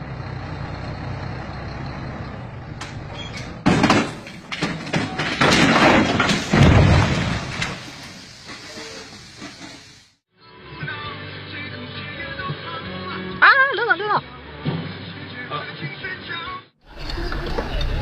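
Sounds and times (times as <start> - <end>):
truck engine rumble: 0.0 - 10.2, 16.9 - 18.0
banging and crashing: 2.7 - 9.8
loud crash impact: 3.6 - 8.3.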